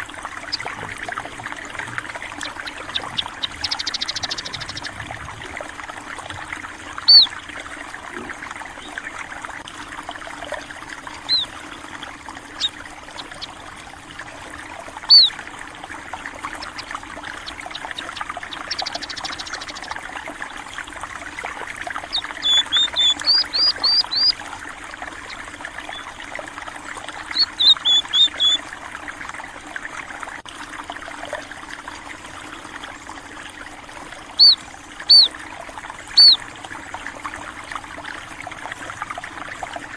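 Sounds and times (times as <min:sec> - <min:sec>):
stream running water: 0:00.0 - 0:39.9
small birds chirping: 0:00.4 - 0:05.2, 0:07.0 - 0:07.4, 0:11.1 - 0:11.8, 0:12.5 - 0:13.6, 0:15.0 - 0:15.4, 0:16.3 - 0:20.1, 0:21.5 - 0:24.5, 0:25.2 - 0:26.2, 0:27.1 - 0:28.6, 0:34.4 - 0:35.4, 0:36.1 - 0:36.4.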